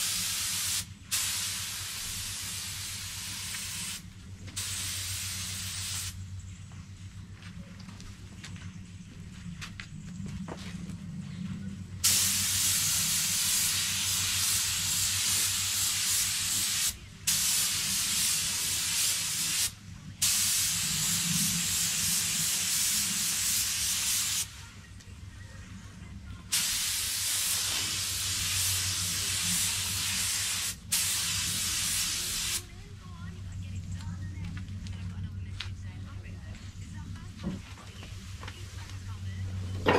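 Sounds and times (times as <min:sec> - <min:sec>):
paint spray gun hissing: 0:00.0 - 0:04.0, 0:04.6 - 0:06.2, 0:12.0 - 0:24.5, 0:26.5 - 0:32.6
low steady hum: 0:03.5 - 0:12.5, 0:32.7 - 0:39.9.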